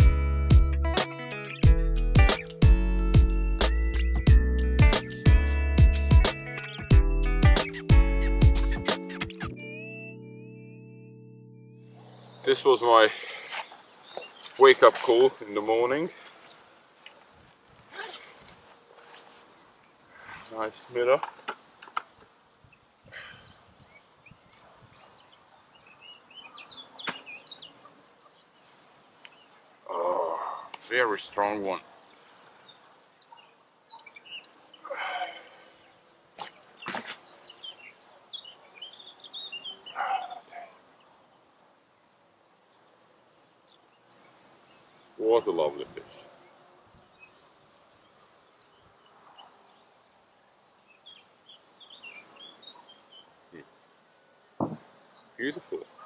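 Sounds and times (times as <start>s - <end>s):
songbirds chirping: 0.0s - 56.0s
small songbird twittering: 51.0s - 53.3s.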